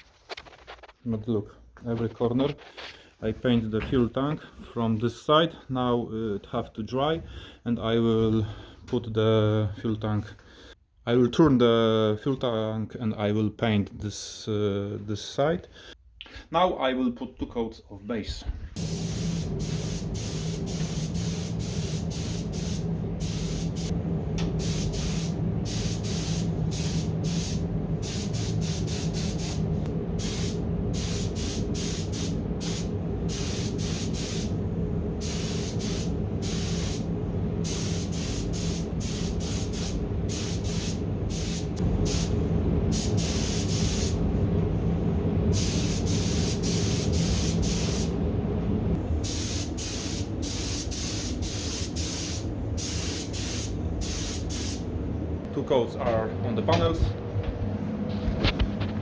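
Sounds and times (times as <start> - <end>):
spray booth heater hum: 18.8 - 55.5
spray gun air hiss: 18.8 - 55.5.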